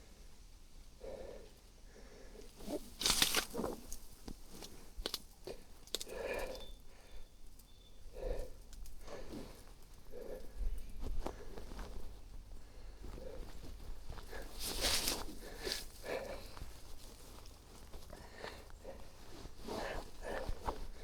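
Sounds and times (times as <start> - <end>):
rustling and crunching: 2.5 - 6.8, 7.6 - 21.0
sharp crackles: 2.6 - 6.6.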